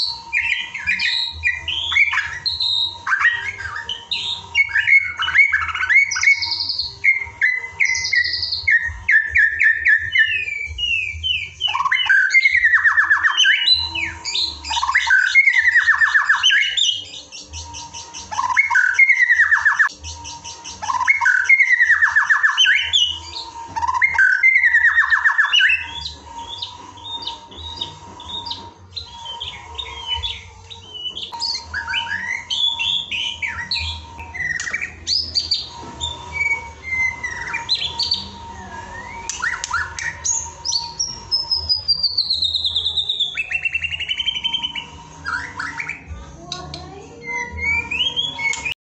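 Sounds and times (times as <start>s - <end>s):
songbird singing with trills: 0.0s - 48.8s.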